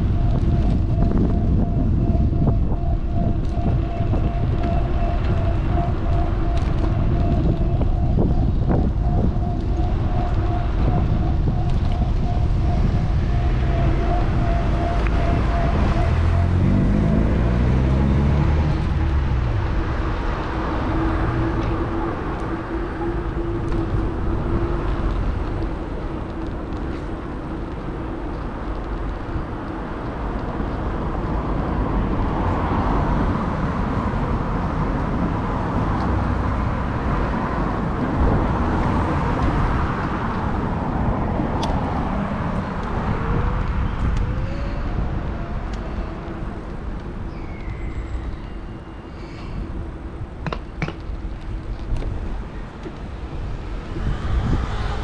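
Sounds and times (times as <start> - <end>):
wind rumbling on microphone: 0.0 - 55.0
vehicle engine passing: 14.7 - 21.9.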